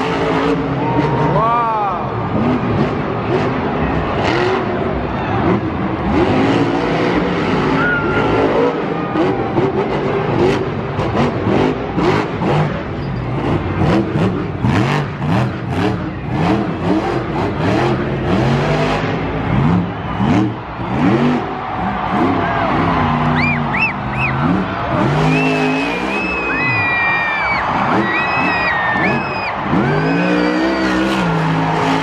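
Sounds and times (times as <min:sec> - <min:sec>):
monster truck engines revving: 0:00.0 - 0:32.0.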